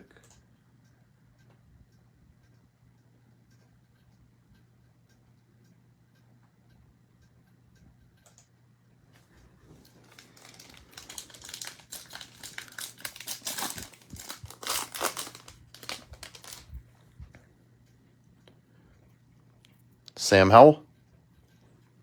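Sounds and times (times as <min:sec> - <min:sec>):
plastic wrapper crinkling and tearing: 0:09.7 - 0:16.8.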